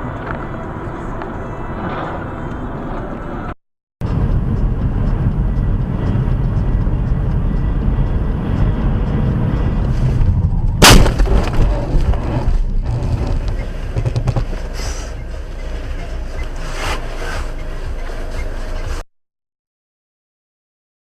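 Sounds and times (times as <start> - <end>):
low vehicle rumble: 0.0 - 19.0
loud sharp bang: 10.8 - 11.8.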